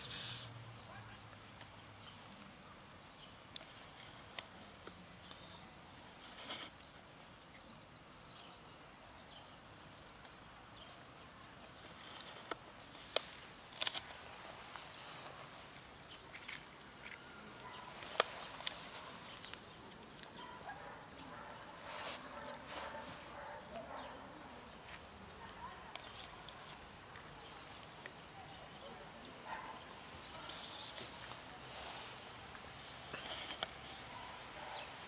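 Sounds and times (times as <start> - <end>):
faint outdoor background noise: 0.0 - 35.0
small birds chirping: 4.8 - 11.0, 11.8 - 32.0.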